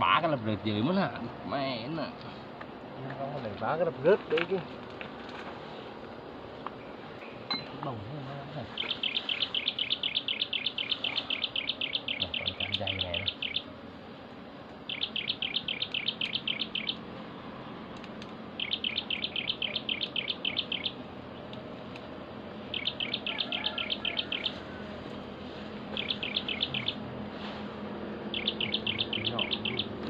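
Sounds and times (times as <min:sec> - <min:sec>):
bird high trill: 0:08.8 - 0:13.7, 0:14.8 - 0:17.1, 0:18.6 - 0:21.0, 0:22.6 - 0:24.8, 0:25.9 - 0:27.0, 0:28.3 - 0:30.0.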